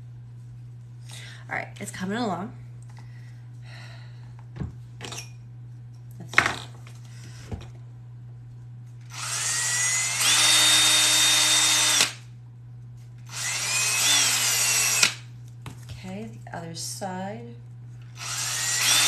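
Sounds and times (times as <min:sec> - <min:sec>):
electric drill boring leather: 0:09.1 - 0:12.2, 0:13.3 - 0:15.2, 0:18.2 - 0:19.0.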